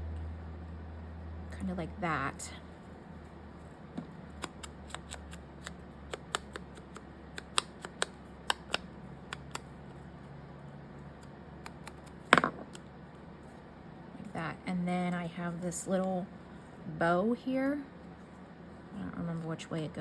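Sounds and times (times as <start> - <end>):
scissors snipping paper: 4.3 - 9.7, 11.2 - 12.2.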